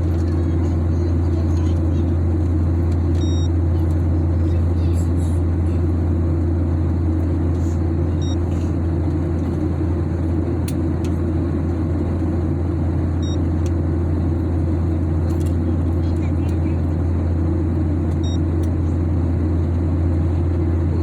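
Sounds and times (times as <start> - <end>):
airliner cabin drone: 0.0 - 21.0
high beeps: 3.2 - 3.5, 8.2 - 8.4.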